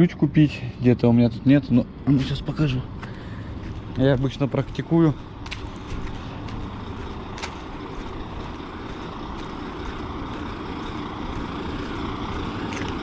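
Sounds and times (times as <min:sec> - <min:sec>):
motor vehicle droning: 0:00.0 - 0:13.0.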